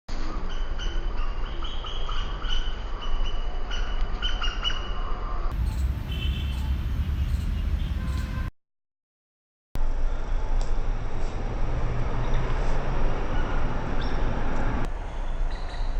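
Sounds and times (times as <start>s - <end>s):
birds chirping: 5.5s - 8.5s
low rumble: 5.5s - 8.5s.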